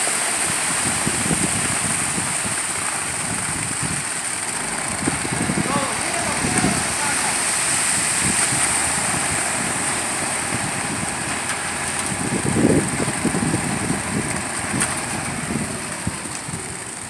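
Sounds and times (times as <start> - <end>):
vehicle engine running: 0.0 - 17.0
louder rumble: 0.7 - 17.0.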